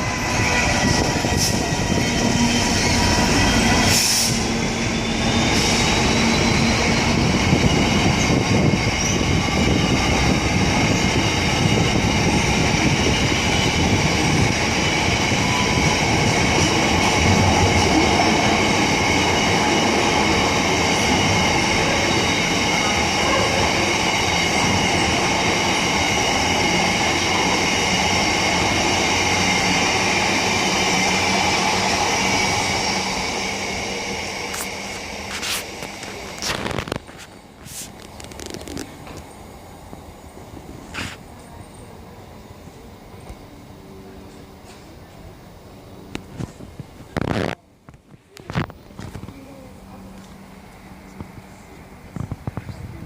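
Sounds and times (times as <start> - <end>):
train wagons rumbling on rails: 0.0 - 39.3.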